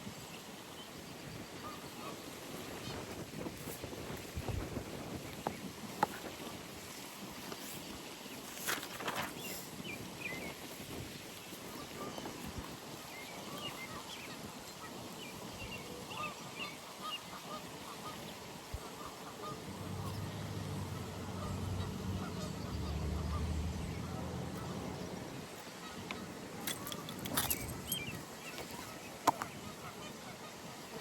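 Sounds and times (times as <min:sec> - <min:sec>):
geese honking: 0:18.9 - 0:25.0
passing vehicle engine hum: 0:19.7 - 0:25.2.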